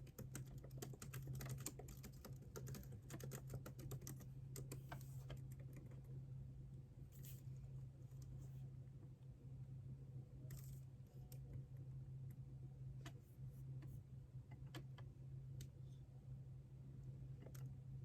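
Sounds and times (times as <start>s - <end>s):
keyboard keystrokes: 0.0s - 5.9s
steady low hum: 0.0s - 18.0s.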